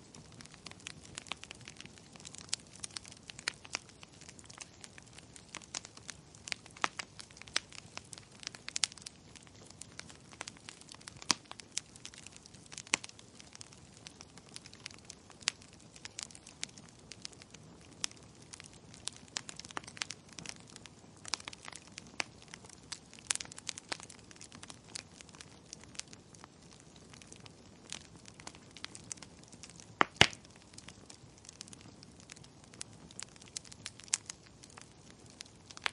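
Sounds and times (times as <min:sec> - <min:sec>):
faint steady hiss: 0:00.0 - 0:35.9
firewood crackling and popping: 0:00.0 - 0:35.9.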